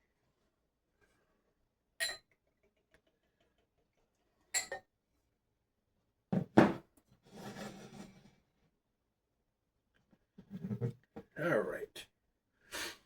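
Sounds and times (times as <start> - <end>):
glassware clinking on hard surface: 2.0 - 2.3, 4.6 - 4.9.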